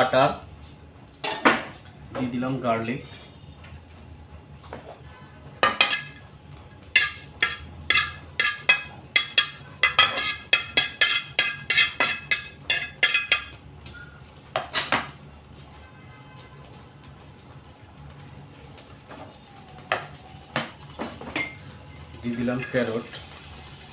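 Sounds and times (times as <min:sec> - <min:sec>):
metal utensil clinking against pan: 0:05.6 - 0:06.2, 0:06.9 - 0:13.6.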